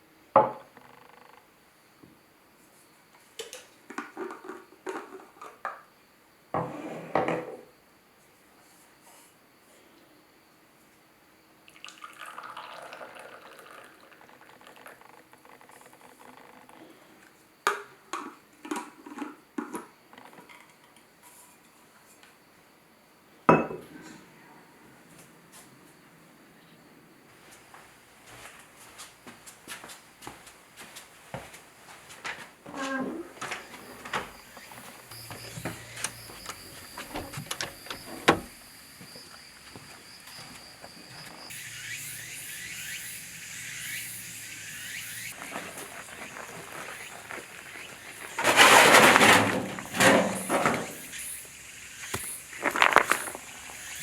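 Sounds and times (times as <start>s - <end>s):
water pouring: 11.7s - 15.0s, 45.3s - 54.0s
dishes clinking and knocking: 23.5s - 23.9s
objects clicking and knocking: 52.1s - 53.4s.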